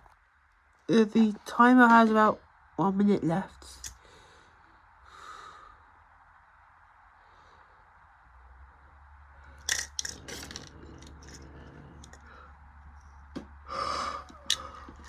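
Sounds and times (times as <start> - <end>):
clicks and clinks: 9.6 - 12.3.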